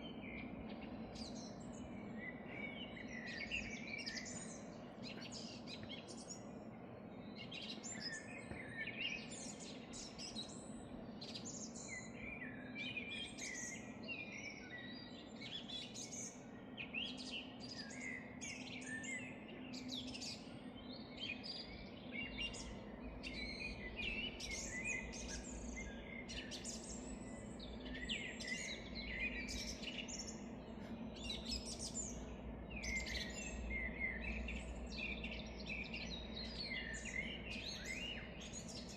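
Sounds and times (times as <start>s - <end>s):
birds singing and chirping: 0.0s - 38.9s
faint low hum: 13.9s - 38.9s.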